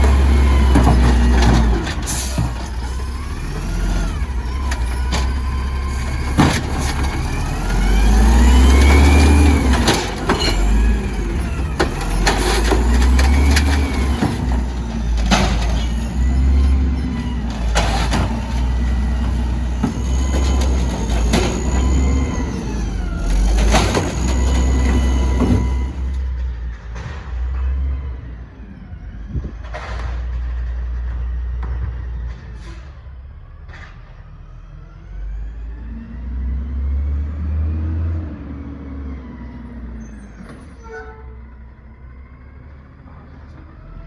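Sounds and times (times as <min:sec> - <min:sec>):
garbage truck engine revving: 0:00.0 - 0:32.3, 0:33.1 - 0:40.8
knocks and clangs: 0:11.5 - 0:16.8, 0:23.2 - 0:27.9.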